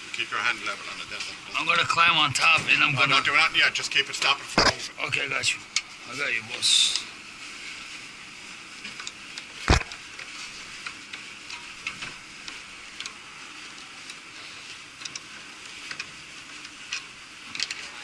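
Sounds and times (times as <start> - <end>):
steady hiss: 0.0 - 18.0
sharp knock: 9.7 - 9.9.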